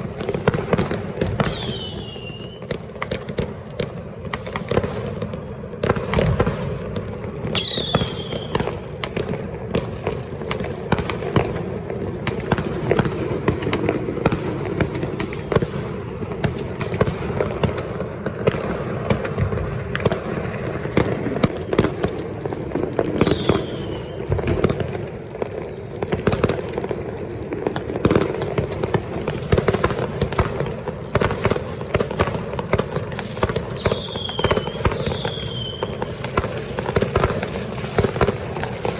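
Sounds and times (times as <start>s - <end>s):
firecrackers banging and crackling: 0.0s - 38.9s
high falling firework whistles: 1.3s - 2.7s, 7.5s - 8.9s, 23.2s - 24.5s, 33.7s - 36.4s.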